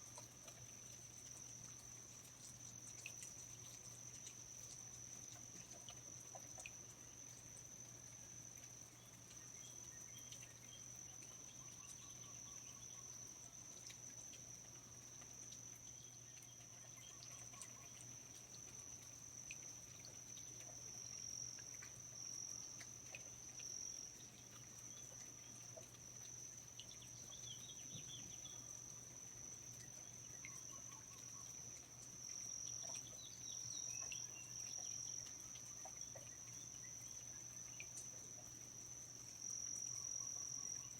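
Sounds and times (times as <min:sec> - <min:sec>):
insects trilling: 0:00.0 - 0:40.9
low steady background hum: 0:00.0 - 0:40.9
small ticks or drips: 0:00.0 - 0:40.9
faint bird chirps: 0:15.9 - 0:18.4, 0:26.8 - 0:29.0, 0:29.7 - 0:38.0.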